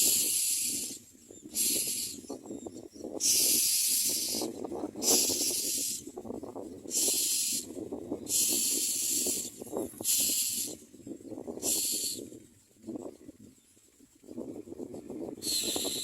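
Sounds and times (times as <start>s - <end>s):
nestlings hissing begging calls: 0.0s - 6.1s, 6.8s - 10.8s, 11.5s - 12.3s, 15.4s - 16.0s.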